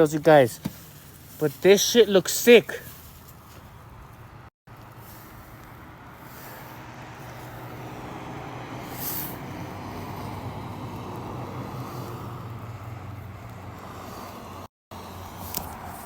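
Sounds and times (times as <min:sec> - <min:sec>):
short hiss: 0:08.9 - 0:09.4.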